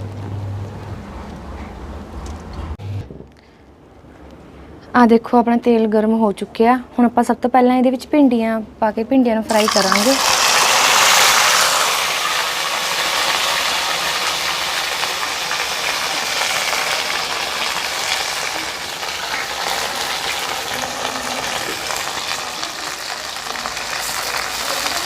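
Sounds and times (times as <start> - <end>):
okra sizzling in hot oil: 9.5 - 25.0.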